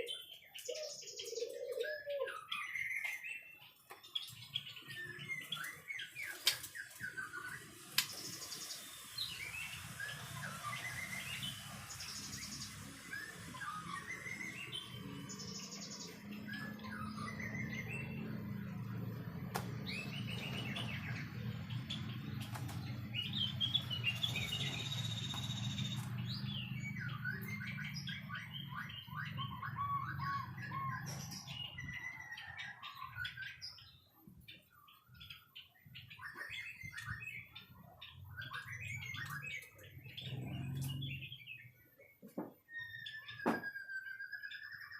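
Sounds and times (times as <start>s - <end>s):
bird singing whistled phrases: 23.2s - 32.6s, 38.2s - 39.8s, 42.7s - 44.9s.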